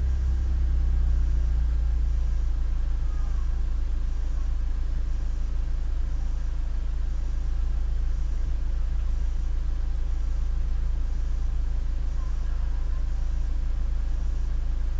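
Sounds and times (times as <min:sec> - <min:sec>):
car exhaust idling: 0:00.0 - 0:14.9.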